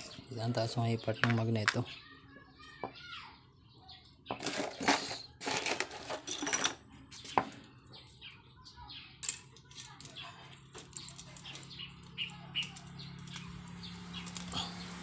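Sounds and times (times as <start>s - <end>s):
metal tools clinking and rattling: 4.3s - 8.2s, 9.2s - 13.6s.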